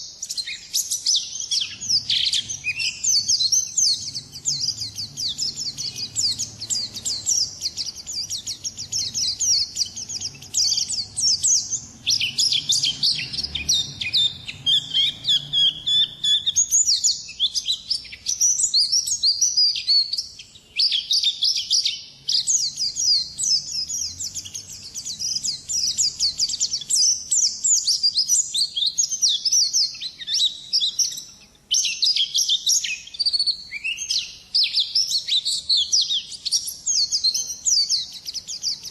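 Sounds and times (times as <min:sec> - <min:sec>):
bird twittering song: 0:00.0 - 0:38.9.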